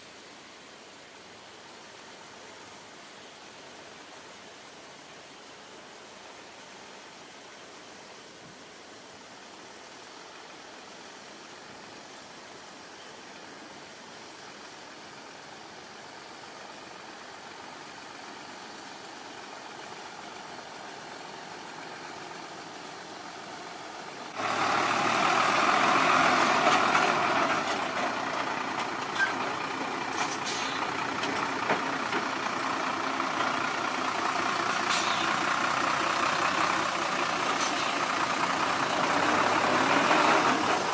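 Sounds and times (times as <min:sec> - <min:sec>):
faint steady hiss: 0:00.0 - 0:40.9
diesel machinery running: 0:19.6 - 0:40.9.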